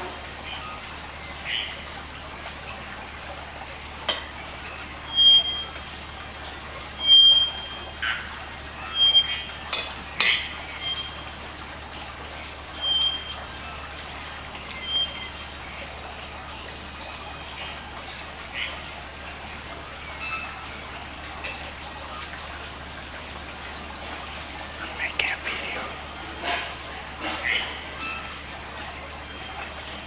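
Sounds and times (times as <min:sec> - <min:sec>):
bird whistling: 0:00.2 - 0:02.0, 0:07.0 - 0:09.6, 0:10.4 - 0:11.3, 0:12.8 - 0:17.3.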